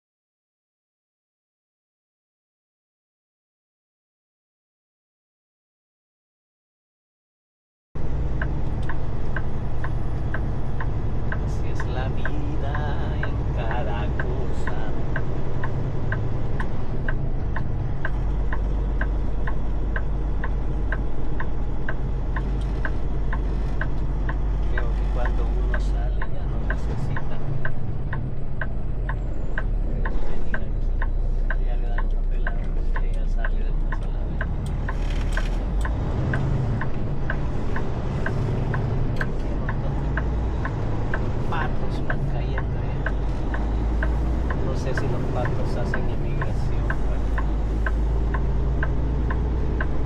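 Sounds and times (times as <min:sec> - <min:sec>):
low engine rumble: 0:08.0 - 0:50.0
turn signal flasher clicking: 0:42.6 - 0:50.0.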